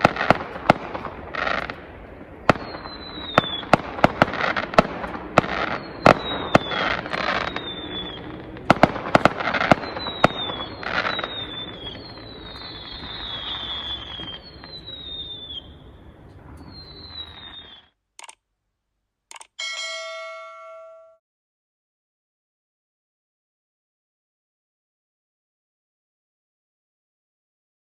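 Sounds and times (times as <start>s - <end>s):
fireworks bangs and crackling: 0.0s - 17.9s
fireworks whistles falling in pitch: 2.5s - 3.9s, 5.4s - 8.4s, 9.4s - 17.9s, 19.6s - 21.2s.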